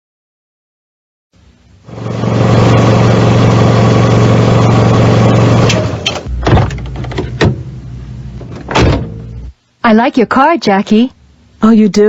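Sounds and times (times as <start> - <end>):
car engine idling: 1.9 - 6.0.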